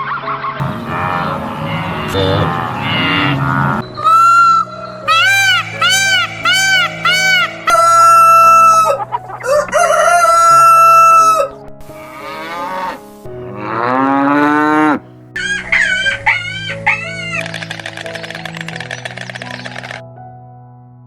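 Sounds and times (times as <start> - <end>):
soft background music: 0.0 - 21.0
chicken clucking calls: 4.0 - 11.6
rooster crowing: 4.0 - 11.6.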